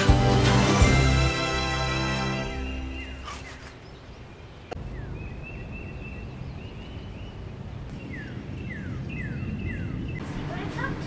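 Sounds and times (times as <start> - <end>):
songbirds singing: 2.3 - 10.9.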